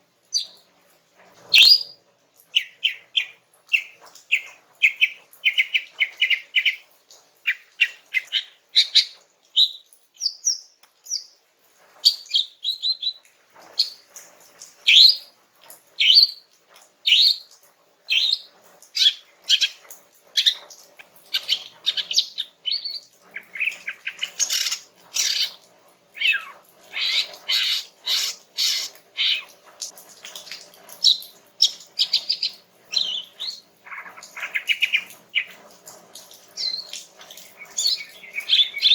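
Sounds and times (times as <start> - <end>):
bird chirping and whistling: 37.7 - 38.9.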